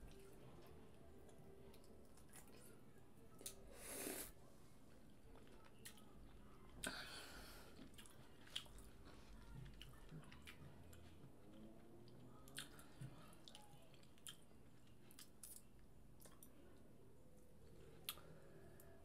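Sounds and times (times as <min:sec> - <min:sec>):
faint close-up chewing: 0:00.0 - 0:03.7, 0:04.9 - 0:19.0.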